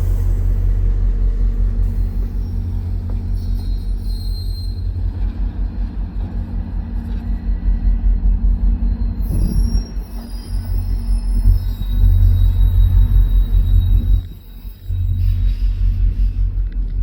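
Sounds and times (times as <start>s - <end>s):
faint high squeal: 0.0s - 5.1s, 8.8s - 16.6s
train rumble and engine drone: 0.0s - 17.0s.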